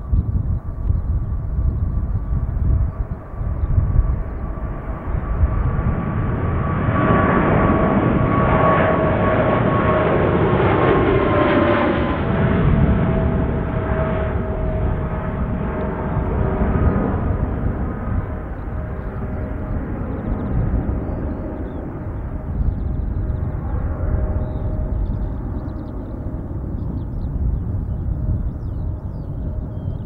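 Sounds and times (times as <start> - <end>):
jet engine whine: 0.0 - 30.0
jet engines roaring: 0.0 - 30.0
wind buffeting microphone: 0.0 - 30.0.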